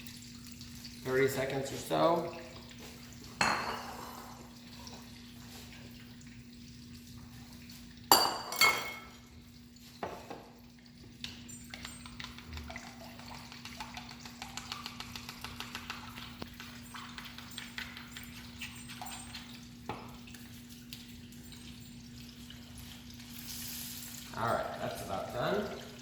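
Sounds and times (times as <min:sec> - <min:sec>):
chicken frying in hot oil: 0:09.2 - 0:26.0.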